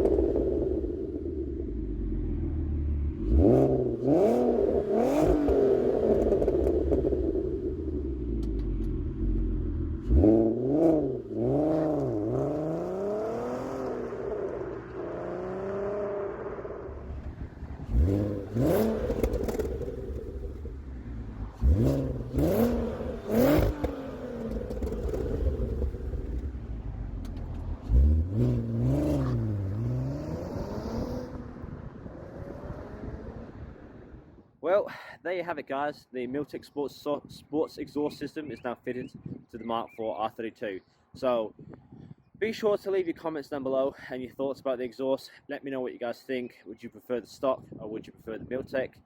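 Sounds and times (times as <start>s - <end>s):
car engine revving: 0.0s - 34.2s.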